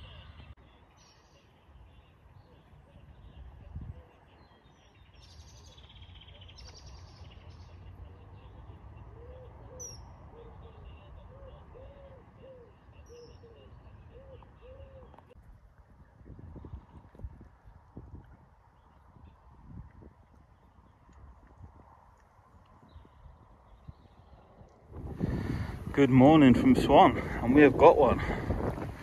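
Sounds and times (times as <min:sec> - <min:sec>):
birds chirping and chattering: 0:00.0 - 0:15.4.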